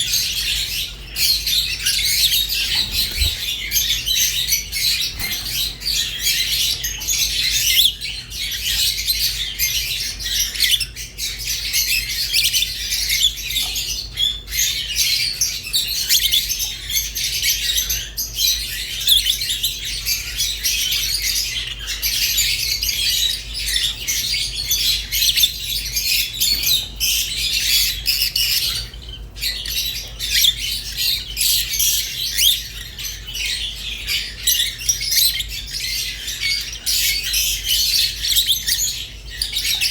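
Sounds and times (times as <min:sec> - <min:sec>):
lovebirds chirping and squawking: 0:00.0 - 0:39.9.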